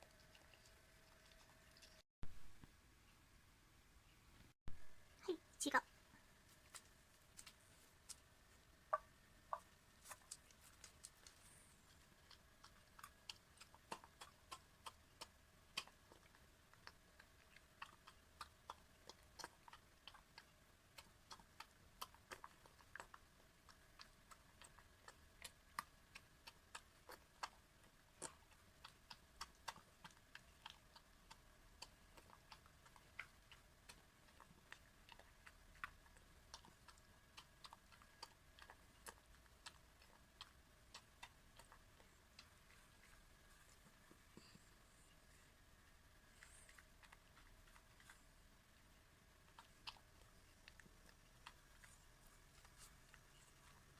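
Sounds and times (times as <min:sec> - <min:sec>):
dog eating from a bowl: 0:09.0 - 0:44.6.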